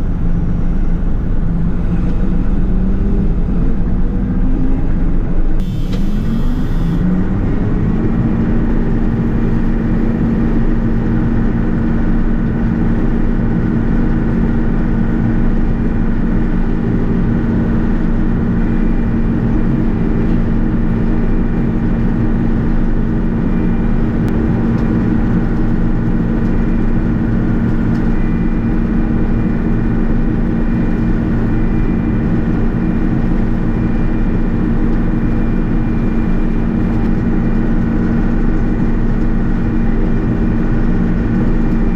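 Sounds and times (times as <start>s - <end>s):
diesel engine droning: 0.0s - 41.9s.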